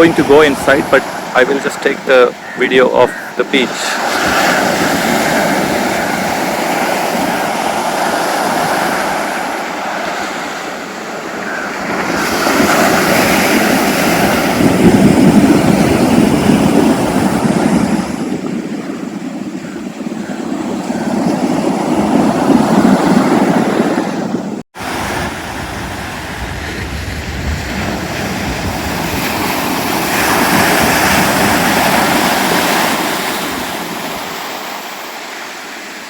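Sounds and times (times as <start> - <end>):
sea surf washing onto beach: 0.0 - 19.3, 20.4 - 36.0
wind on microphone: 0.0 - 34.7.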